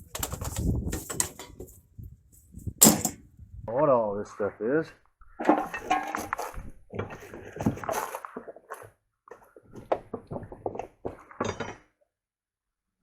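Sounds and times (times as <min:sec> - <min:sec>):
trash being rummaged through: 0:05.4 - 0:11.8.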